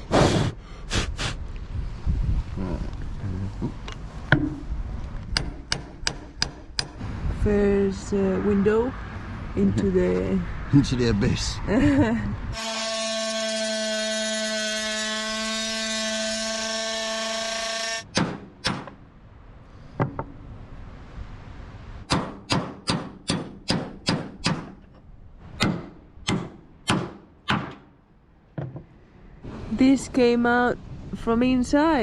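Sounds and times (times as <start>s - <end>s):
sharp metallic knocks: 4.3s - 4.7s, 5.3s - 7.0s, 18.0s - 19.0s, 22.1s - 24.9s, 25.6s - 27.9s.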